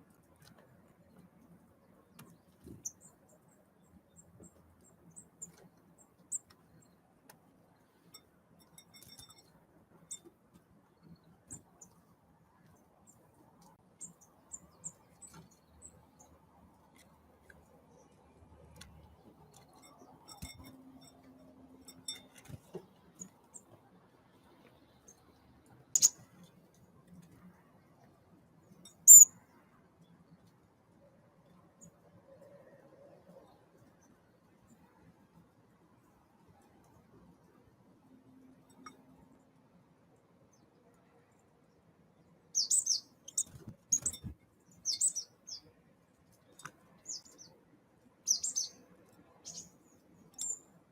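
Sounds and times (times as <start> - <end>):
small birds calling: 25.0 - 26.4, 28.9 - 29.3, 42.6 - 45.7, 46.4 - 47.6, 48.2 - 50.7.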